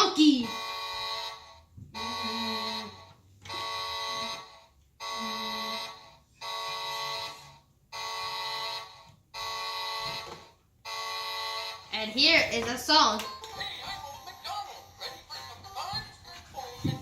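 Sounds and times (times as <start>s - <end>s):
toy truck electronic horn honking: 0.4s - 12.4s.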